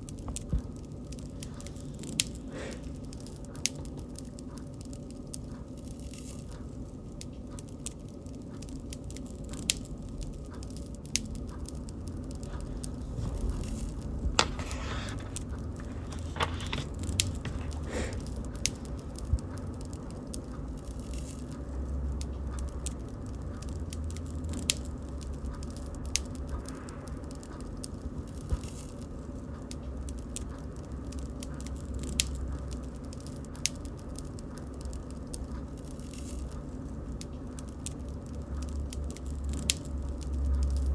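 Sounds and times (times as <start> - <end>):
low rumble of flames: 0.0 - 40.9
wood crackling and popping: 0.1 - 40.9.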